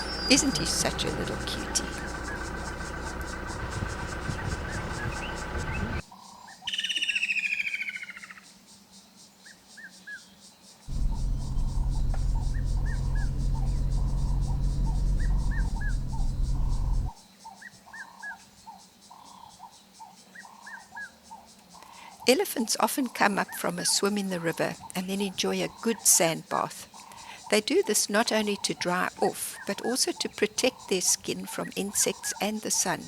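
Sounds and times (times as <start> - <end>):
low steady rumble: 0.0 - 6.0, 10.9 - 17.1
small birds chirping: 0.0 - 6.0, 10.9 - 17.1
insect buzz: 10.9 - 17.1.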